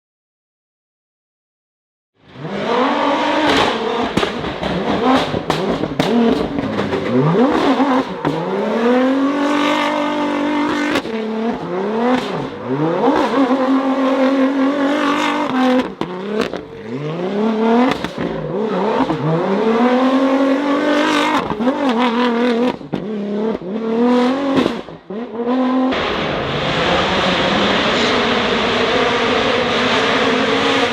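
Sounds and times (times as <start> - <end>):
rally car engines revving: 2.2 - 30.9
sharp cracks: 3.5 - 8.5.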